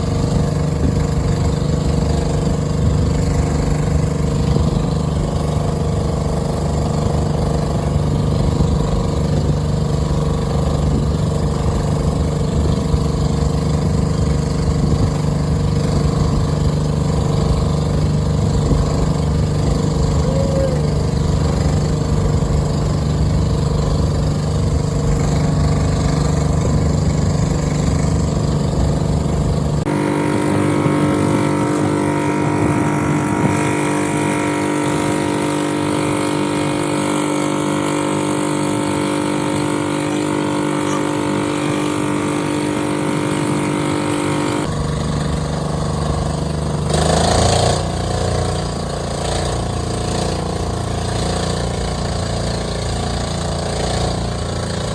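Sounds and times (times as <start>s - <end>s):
boat engine running: 0.0s - 54.9s.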